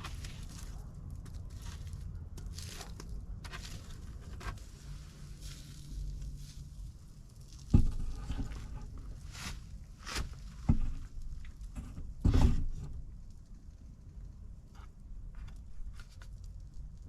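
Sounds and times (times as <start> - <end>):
scraping or rustling: 0.0 - 13.0.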